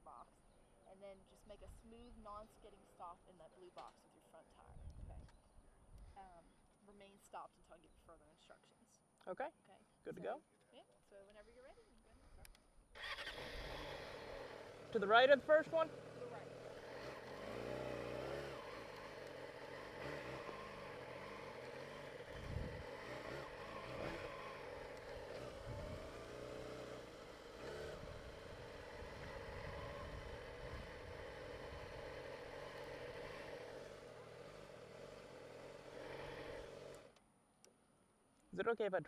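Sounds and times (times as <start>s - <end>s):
motorcycle engine running: 11.8s - 37.2s.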